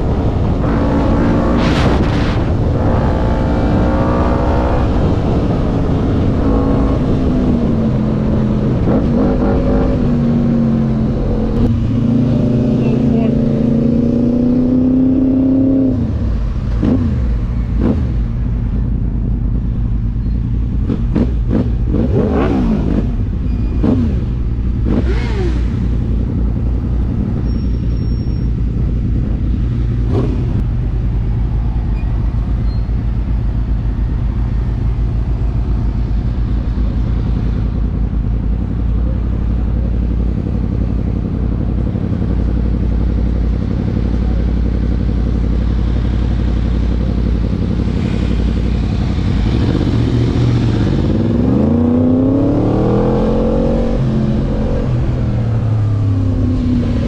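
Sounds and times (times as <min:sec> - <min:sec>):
motorbike engine revving: 0:20.8 - 0:30.6.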